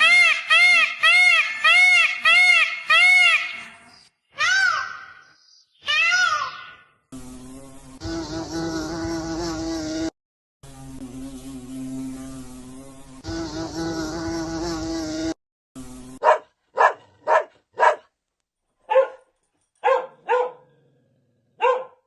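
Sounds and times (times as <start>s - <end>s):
flying insect buzzing: 6.0s - 16.4s.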